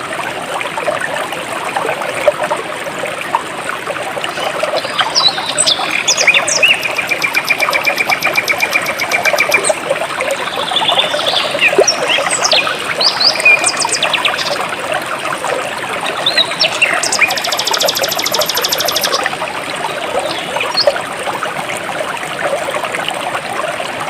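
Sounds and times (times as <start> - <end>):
stream water flowing: 0.0 - 24.0
birds chirping: 4.4 - 14.6, 16.1 - 19.3
bird trilling: 5.2 - 9.8.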